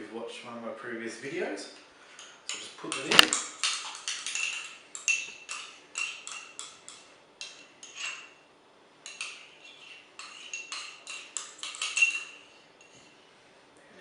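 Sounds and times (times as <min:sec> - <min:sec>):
utensil clinking against a dish: 0:02.1 - 0:08.4, 0:09.0 - 0:13.2.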